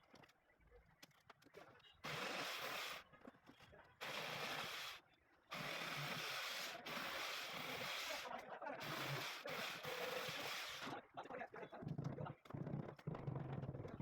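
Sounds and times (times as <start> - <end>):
power tool drilling into wall: 2.0 - 3.0, 4.0 - 10.9.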